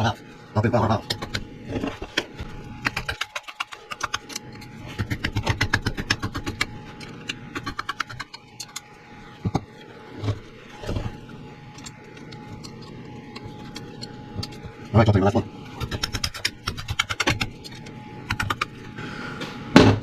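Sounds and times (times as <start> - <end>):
socket ratchet clicking: 15.8 - 18.7.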